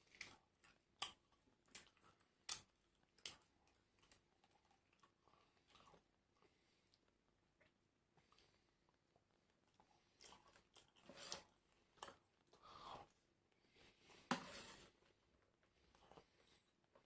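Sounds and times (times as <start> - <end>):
person chewing crunchy food: 0.0 - 13.2.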